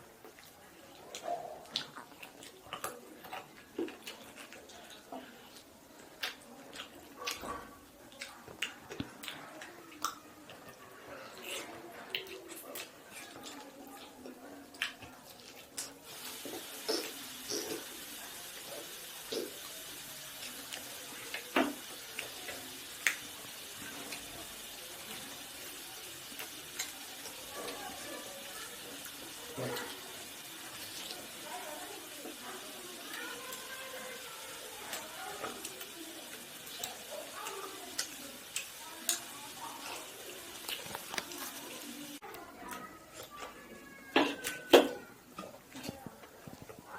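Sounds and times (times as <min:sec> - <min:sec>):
wet chewing clicks and smacks: 0:00.2 - 0:16.0.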